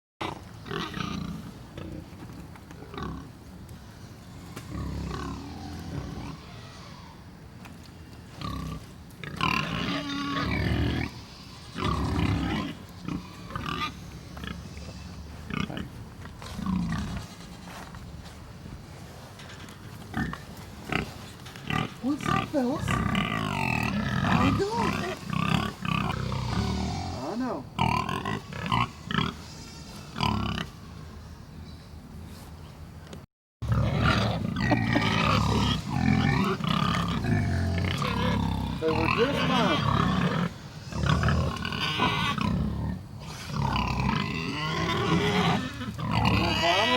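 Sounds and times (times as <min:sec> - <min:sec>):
pigs grunting: 0:00.2 - 0:03.4, 0:04.2 - 0:07.2, 0:08.3 - 0:17.8, 0:19.5 - 0:31.0, 0:33.6 - 0:46.9
pigs squealing: 0:04.3 - 0:07.3, 0:08.3 - 0:16.0, 0:20.2 - 0:31.2, 0:33.6 - 0:46.9.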